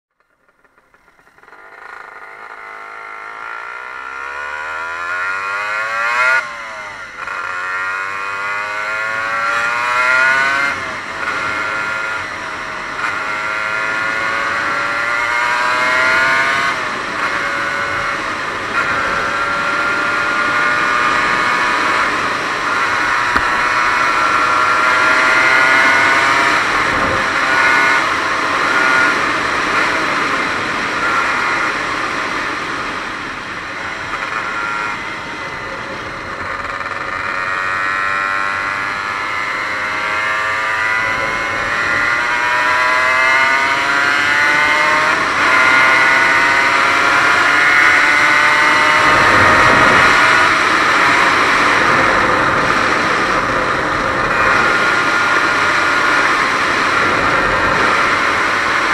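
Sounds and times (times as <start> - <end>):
two-stroke motorcycle engine revving: 0.1 - 58.9
wind noise: 15.4 - 36.7, 37.8 - 58.9.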